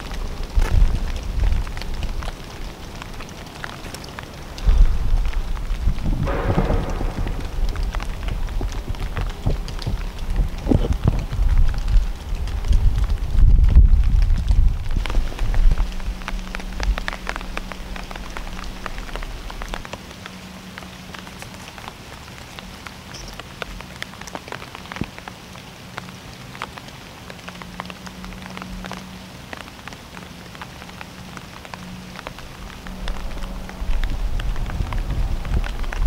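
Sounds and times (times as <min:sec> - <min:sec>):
low rumble: 0:00.0 - 0:19.9, 0:32.2 - 0:36.0
rain drops tapping in woods: 0:00.0 - 0:36.0.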